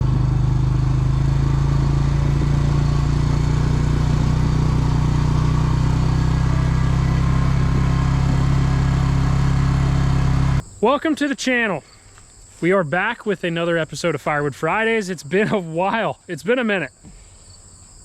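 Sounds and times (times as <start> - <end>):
engine idling: 0.0 - 10.6.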